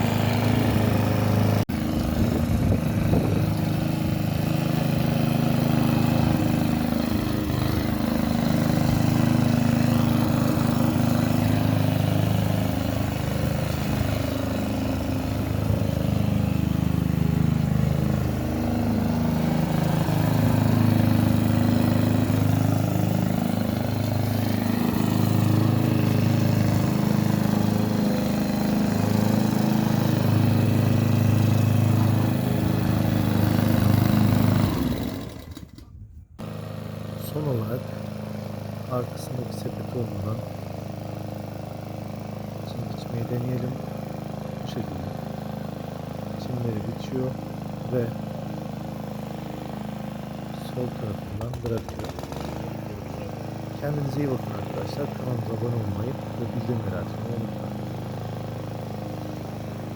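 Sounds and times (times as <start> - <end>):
lawn mower engine running: 0.0 - 59.9.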